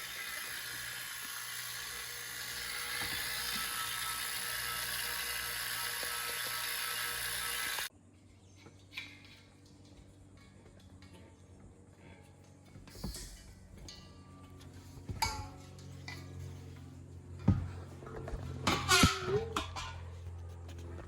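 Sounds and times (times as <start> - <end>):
high hissing whir: 0.0 - 7.9.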